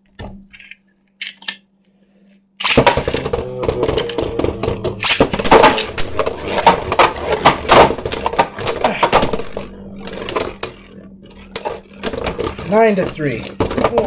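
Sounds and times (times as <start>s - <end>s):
spinning tops clacking together: 2.6s - 3.3s, 5.0s - 10.9s.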